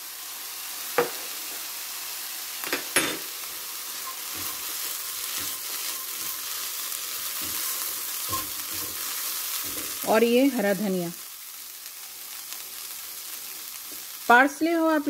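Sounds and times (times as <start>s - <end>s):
food sizzling in a frying pan: 0.0s - 15.0s
spatula knocking on pan: 7.3s - 10.0s.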